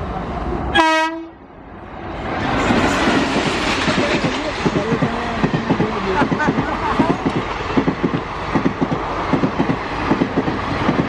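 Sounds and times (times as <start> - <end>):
train rushing past: 0.0 - 11.0.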